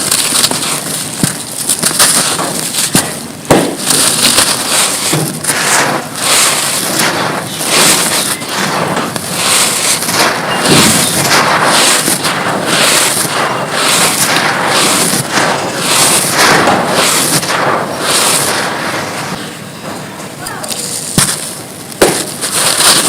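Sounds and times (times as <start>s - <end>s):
dry mud crumbling and crunching: 0.0s - 6.2s.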